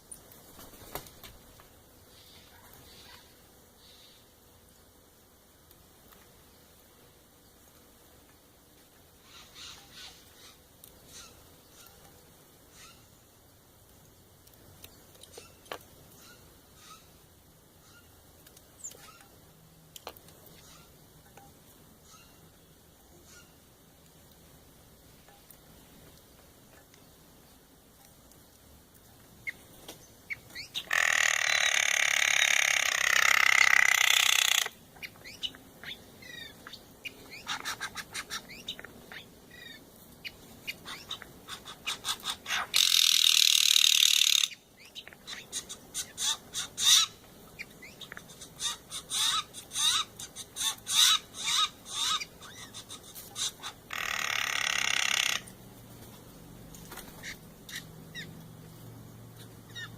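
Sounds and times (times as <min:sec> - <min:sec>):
jays giving harsh rasping calls: 0:12.7 - 0:13.1, 0:16.2 - 0:17.1, 0:30.6 - 0:39.8, 0:40.7 - 0:47.2, 0:47.8 - 0:55.6.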